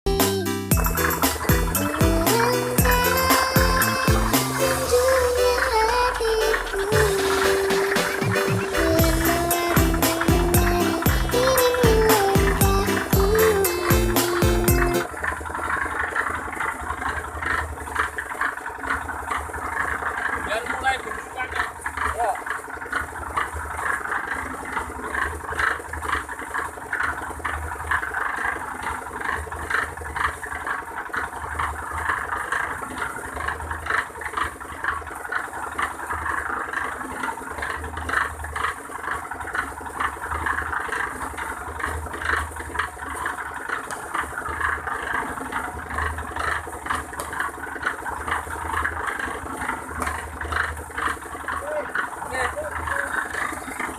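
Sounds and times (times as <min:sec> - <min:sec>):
pulsing low hum: 0:00.1 - 0:15.0
machine rattling and clattering: 0:15.0 - 0:53.9.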